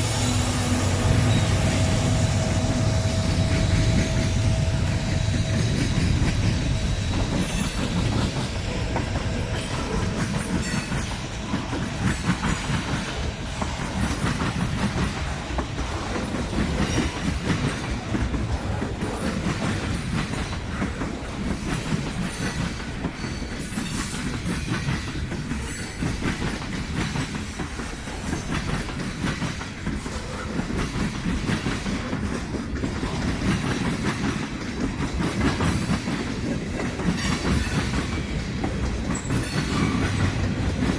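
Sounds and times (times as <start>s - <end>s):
railroad cars rolling past: 0.0s - 40.9s
wheels clicking over rail joints: 5.4s - 40.9s.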